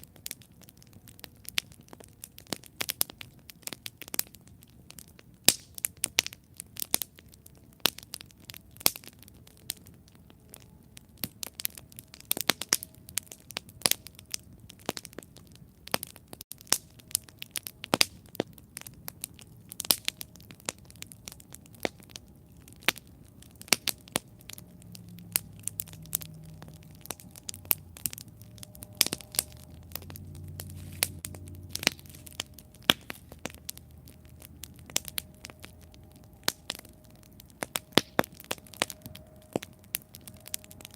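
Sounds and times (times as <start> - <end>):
campfire crackling and popping: 0.0 - 40.9
soft low rumble: 17.0 - 40.9.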